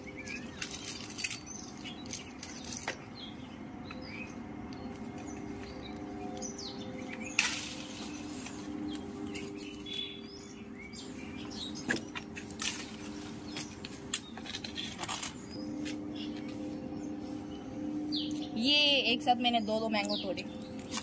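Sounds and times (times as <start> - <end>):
small birds chirping: 0.0 - 21.0
steady low hum: 0.0 - 21.0
rustles: 0.2 - 3.0, 7.1 - 18.6.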